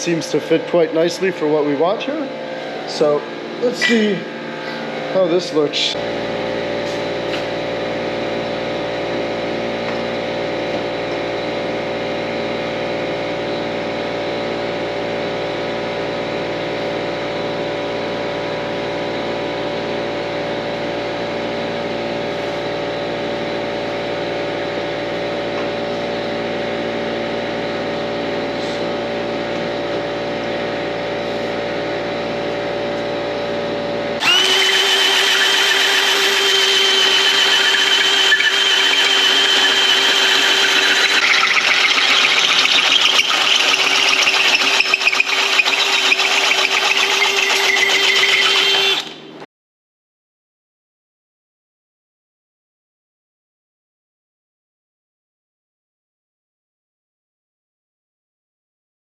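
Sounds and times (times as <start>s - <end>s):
high whine: 0.0s - 45.7s
steady machine hum: 0.0s - 49.5s.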